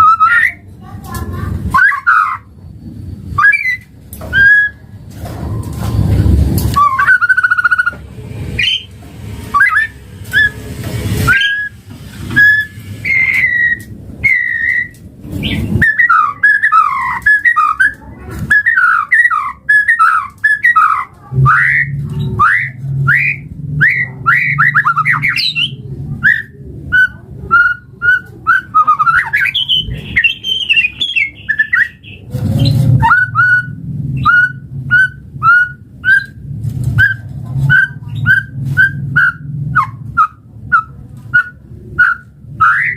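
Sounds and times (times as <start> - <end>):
bird singing whistled notes: 3.4 - 4.8, 6.8 - 8.0, 8.6 - 8.9, 9.5 - 10.6, 11.3 - 11.8, 12.4 - 36.4.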